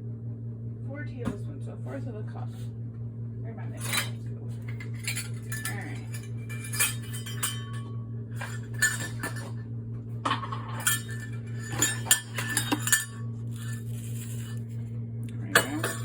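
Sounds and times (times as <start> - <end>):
steady low hum: 0.0 - 16.0
measuring cups clinking: 3.8 - 9.6, 10.3 - 14.8, 15.5 - 16.0.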